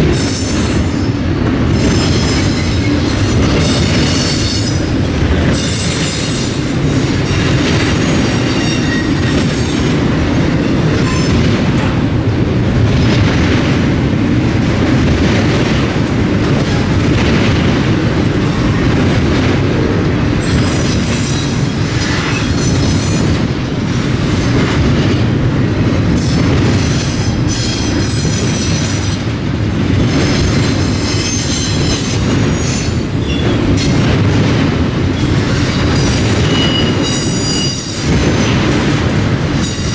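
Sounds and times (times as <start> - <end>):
freight train wheels clattering: 0.0 - 39.9
steel wheel squeal: 0.2 - 10.2, 20.4 - 23.5, 26.2 - 29.3, 30.0 - 34.2, 35.2 - 38.6.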